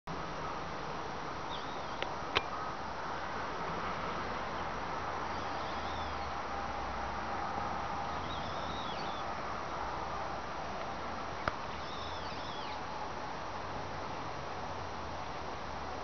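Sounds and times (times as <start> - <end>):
outdoor background noise: 0.1 - 16.0
small birds chirping: 1.4 - 2.6, 4.5 - 6.4, 8.0 - 9.4, 11.4 - 12.9.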